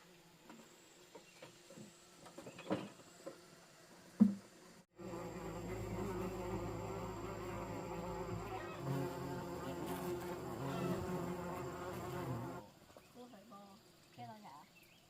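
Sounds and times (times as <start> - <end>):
flying insect buzzing: 4.9 - 12.7.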